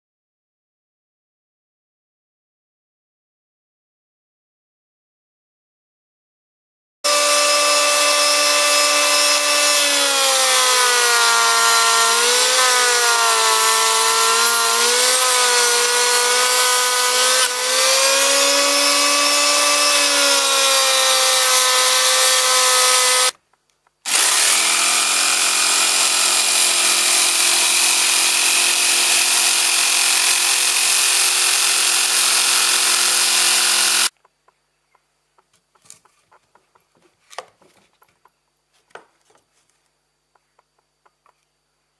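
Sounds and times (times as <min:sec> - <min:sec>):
electric planer whining: 0:07.1 - 0:23.4, 0:24.1 - 0:34.1.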